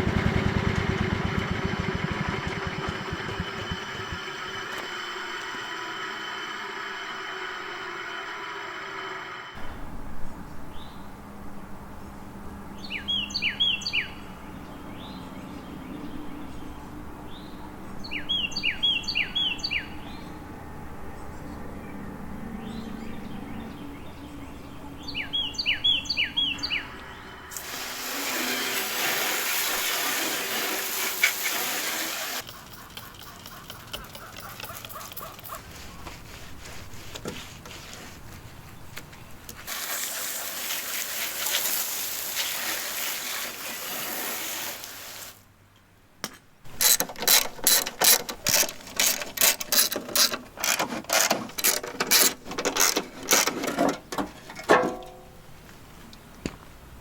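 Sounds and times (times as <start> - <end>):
mechanical scraping noise: 1.3 - 9.8, 46.7 - 53.9
bird chirps: 22.6 - 27.5, 32.4 - 36.0
ratchet clicks: 32.4 - 35.6, 46.7 - 53.6.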